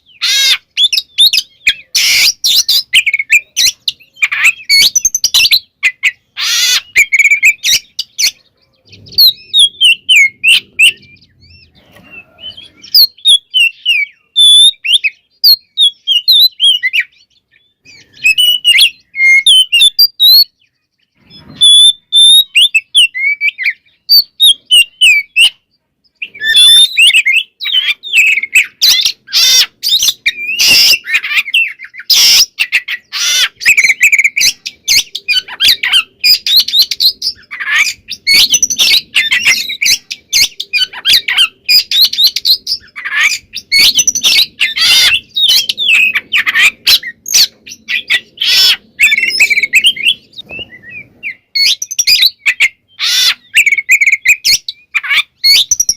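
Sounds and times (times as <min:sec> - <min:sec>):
bird singing whistles and chirps: 0:00.0 - 0:55.9.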